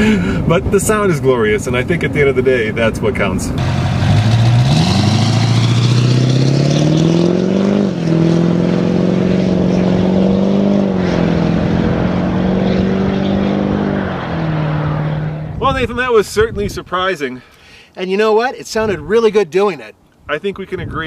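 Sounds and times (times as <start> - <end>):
diesel truck engine accelerating: 3.5 - 15.6.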